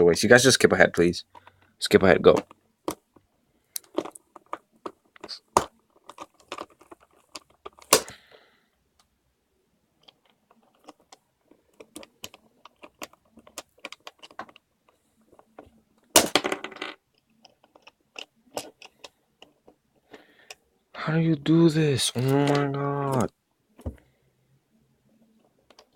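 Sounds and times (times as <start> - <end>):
plastic puzzle cube pieces clicking: 3.7 - 8.2, 10.0 - 20.6, 22.2 - 23.3, 25.4 - 25.9.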